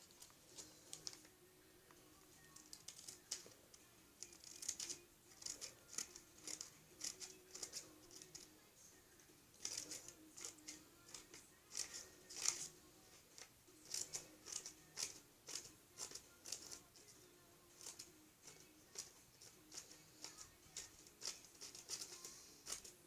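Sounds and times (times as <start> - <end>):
scissors snipping paper: 4.2 - 8.5, 9.6 - 12.7, 13.4 - 17.1, 17.8 - 23.0.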